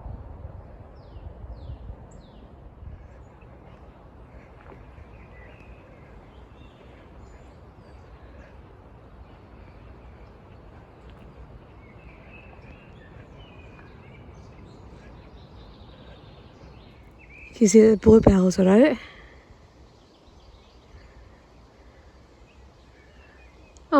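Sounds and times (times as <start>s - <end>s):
low background rumble: 0.0s - 23.9s
small songbirds chirping: 1.0s - 23.9s.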